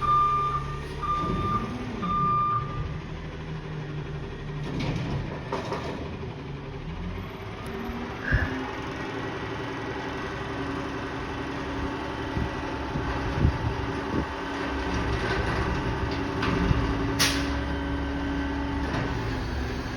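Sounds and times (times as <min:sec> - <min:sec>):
garbage truck running: 0:00.0 - 0:19.9.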